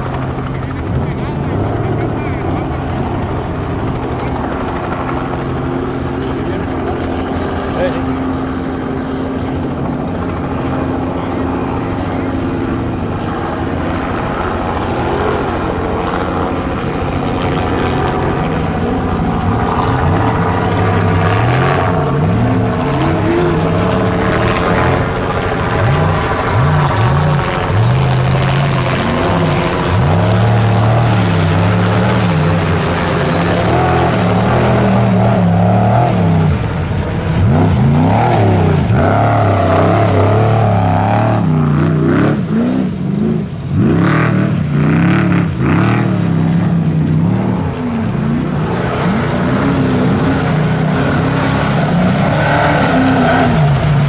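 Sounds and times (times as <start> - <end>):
off-road truck engine revving: 0.0 - 54.0.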